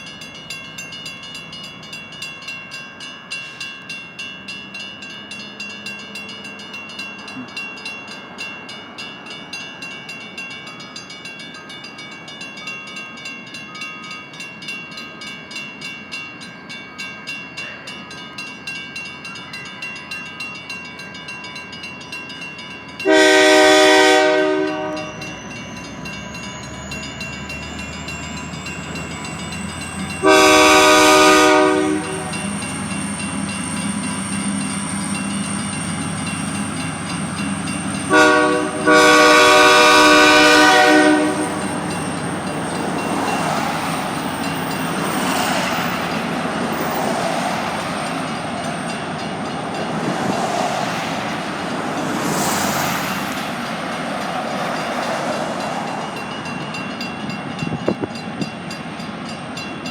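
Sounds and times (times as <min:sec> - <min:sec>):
railroad crossing bell ringing: 0:00.0 - 0:59.9
locomotive horn blast: 0:23.0 - 0:25.4, 0:30.2 - 0:32.6, 0:38.0 - 0:41.8.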